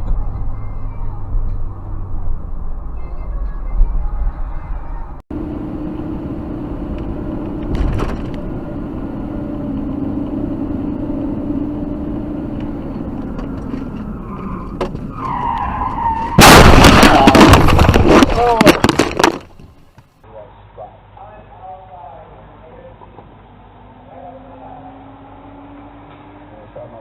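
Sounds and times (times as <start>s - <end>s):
road noise: 0.0s - 27.0s
car engine: 5.1s - 20.0s
car crash with crunching impacts: 7.6s - 8.4s, 15.9s - 19.9s
tyres screeching: 12.9s - 19.7s.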